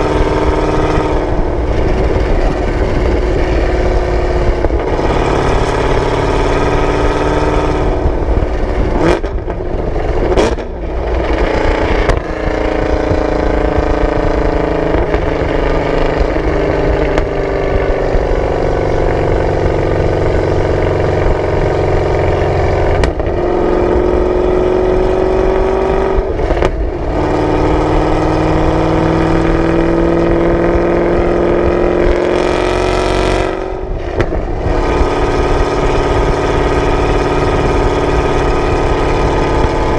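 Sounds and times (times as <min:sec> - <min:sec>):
car engine revving while driving: 0:00.0 - 0:39.9.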